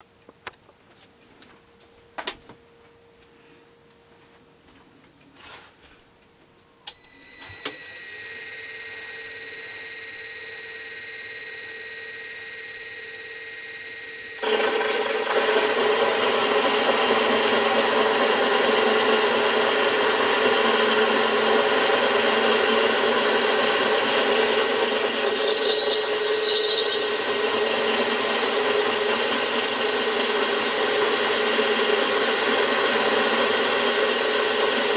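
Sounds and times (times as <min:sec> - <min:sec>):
milling machine motor running: 0:07.3 - 0:34.9
end mill cutting aluminium: 0:13.4 - 0:34.9.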